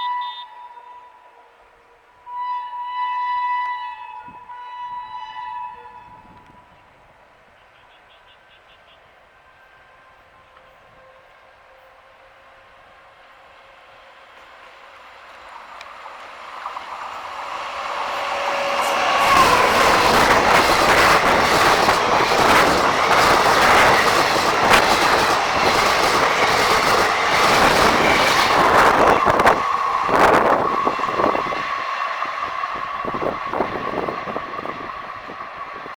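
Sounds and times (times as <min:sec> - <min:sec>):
train rumble: 0:08.4 - 0:36.0
wheels clattering over rail joints: 0:14.3 - 0:35.2
wheel squeal: 0:16.6 - 0:35.8.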